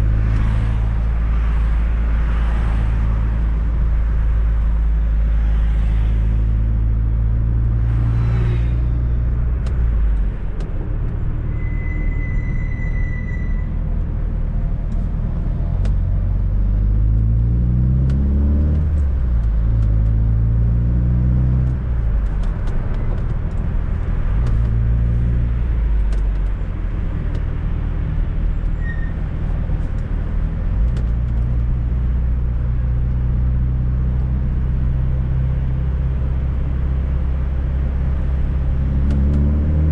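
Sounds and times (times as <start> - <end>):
car engine revving: 37.6 - 39.9.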